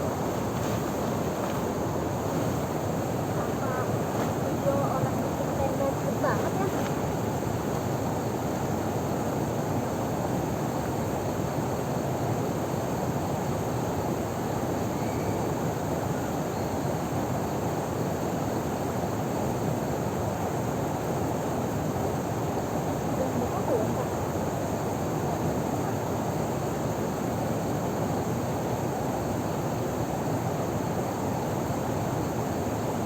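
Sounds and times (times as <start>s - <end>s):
river water over small waterfall: 0.0s - 10.6s.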